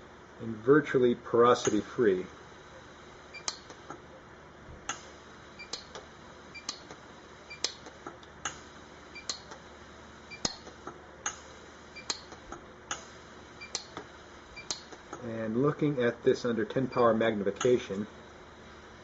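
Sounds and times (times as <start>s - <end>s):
welder pulses ticking: 4.9s - 19.0s.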